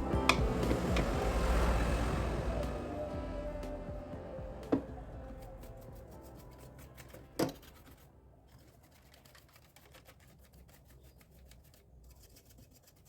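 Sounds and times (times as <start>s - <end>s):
faint scratching and rubbing: 5.2s - 13.0s.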